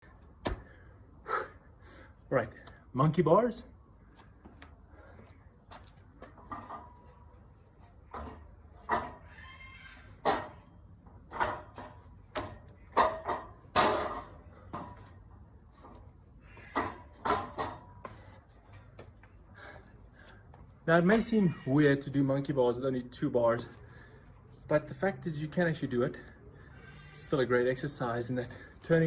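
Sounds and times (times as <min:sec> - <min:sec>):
knocks and creaks from metal bars: 0:06.2 - 0:15.2, 0:15.8 - 0:19.1.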